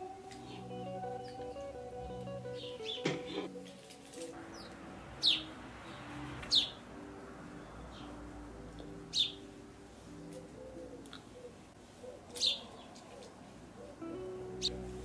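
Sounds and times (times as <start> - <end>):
faint low sustained notes: 0.0 - 3.0, 14.0 - 15.0
songbird chirping: 0.0 - 15.0.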